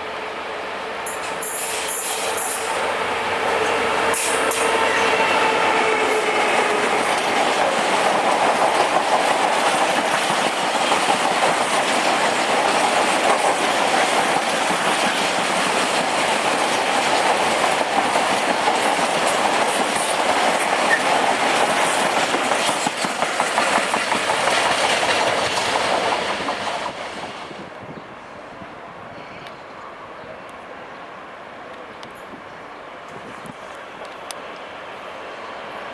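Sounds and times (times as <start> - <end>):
train wheels rushing on rails: 0.0 - 28.6.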